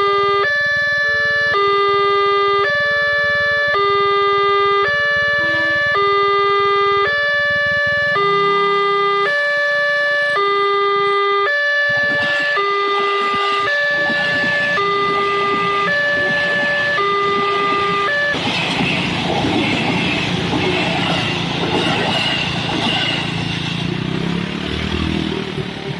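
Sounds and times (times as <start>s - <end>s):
level crossing alarm two-tone: 0.0s - 18.4s
broad rushing noise: 11.9s - 25.9s.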